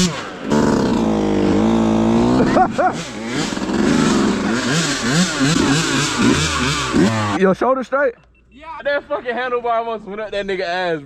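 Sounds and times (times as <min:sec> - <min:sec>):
dirt bike engines revving: 0:00.0 - 0:07.6.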